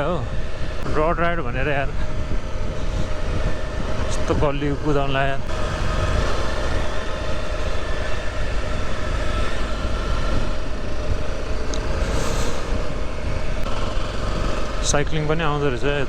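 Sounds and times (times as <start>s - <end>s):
motorcycle engine running: 0.0s - 16.0s
wind rumble on microphone: 0.0s - 16.0s.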